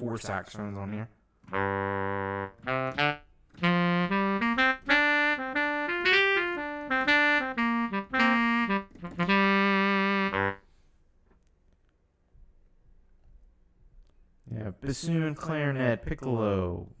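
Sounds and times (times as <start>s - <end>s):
synthesized saxophone melody: 1.5s - 10.7s.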